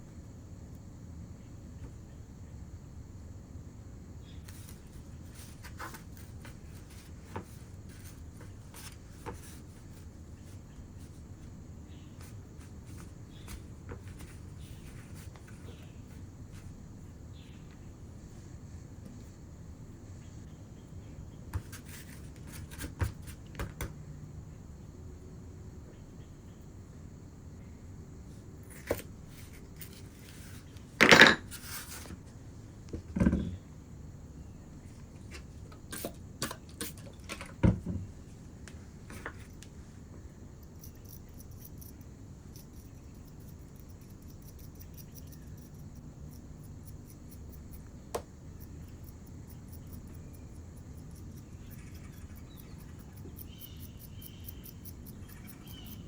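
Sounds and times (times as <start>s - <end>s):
low steady hum: 0.0s - 56.0s
clay scraped and tapped by hand: 38.6s - 39.7s, 40.7s - 56.0s
sharp ticks: 40.6s - 48.0s, 48.6s - 56.0s.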